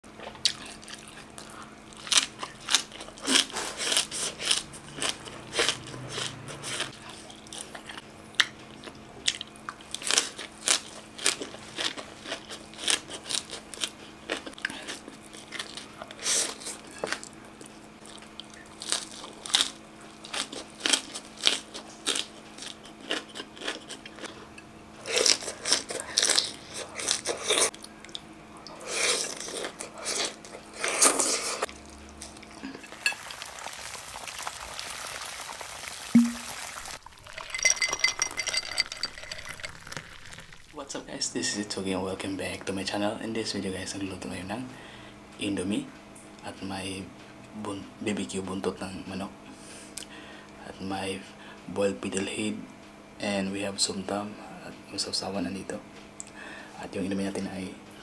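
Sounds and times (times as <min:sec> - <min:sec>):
crunching and chewing food: 0:00.1 - 0:40.8.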